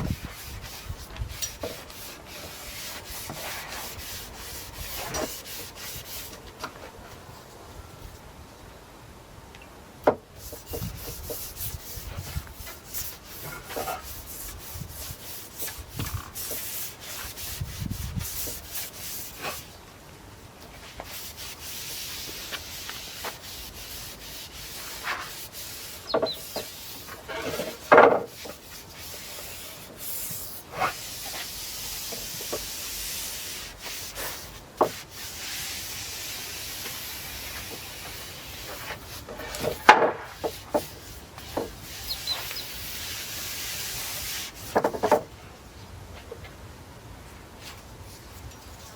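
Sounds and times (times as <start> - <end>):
paintbrush swishing on wood: 20.8 - 44.7.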